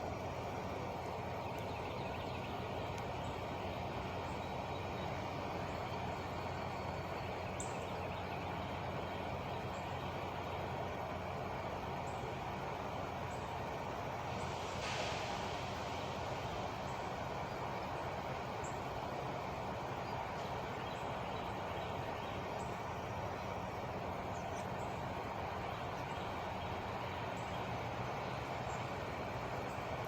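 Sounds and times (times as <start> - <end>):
birds chirping: 0.0 - 14.6, 16.7 - 30.0
truck engine idling: 0.0 - 30.0
short hiss: 14.5 - 15.9.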